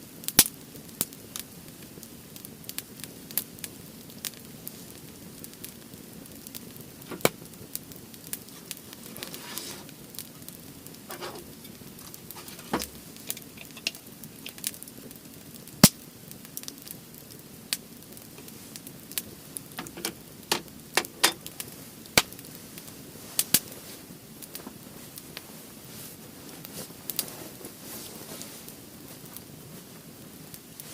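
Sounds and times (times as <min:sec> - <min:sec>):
firewood crackling: 0:00.0 - 0:30.9
low hiss: 0:00.0 - 0:30.9
sharp fire pops: 0:04.2 - 0:23.8.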